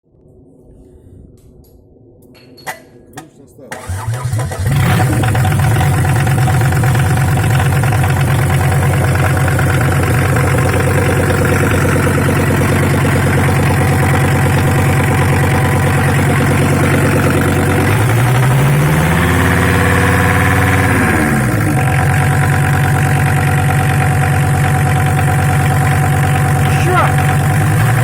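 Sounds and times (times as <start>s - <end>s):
diesel engine idling and revving: 3.8s - 28.0s.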